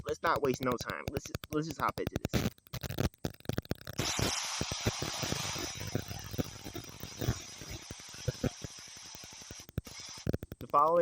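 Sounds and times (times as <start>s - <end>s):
crackling clicks: 0.0s - 11.0s
static-like hiss: 0.0s - 11.0s.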